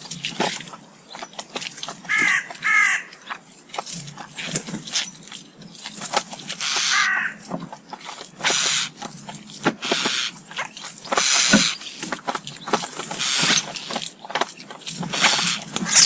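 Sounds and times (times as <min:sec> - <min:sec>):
starlings giving harsh screechy calls: 0:06.6 - 0:07.4, 0:08.5 - 0:08.9, 0:11.2 - 0:12.0, 0:13.2 - 0:13.8, 0:15.2 - 0:16.0.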